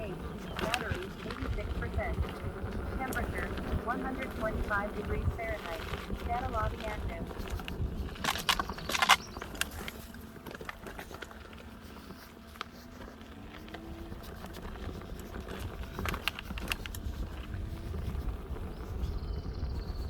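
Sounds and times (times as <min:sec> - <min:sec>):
low wind rumble: 0:00.0 - 0:20.0.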